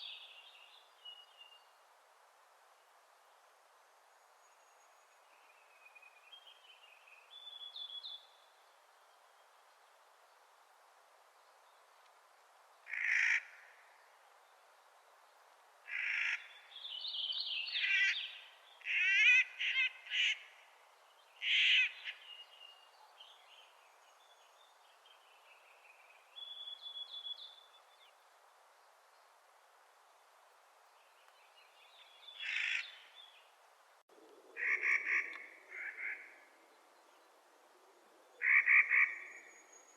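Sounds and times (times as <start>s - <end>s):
bird harsh grating calls: 32.4s - 33.0s.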